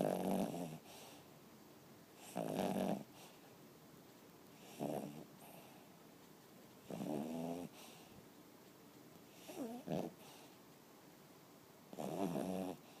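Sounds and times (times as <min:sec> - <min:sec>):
dog snoring: 0:00.0 - 0:01.2, 0:02.2 - 0:03.4, 0:04.6 - 0:05.8, 0:06.8 - 0:08.1, 0:09.3 - 0:10.5, 0:11.9 - 0:13.0.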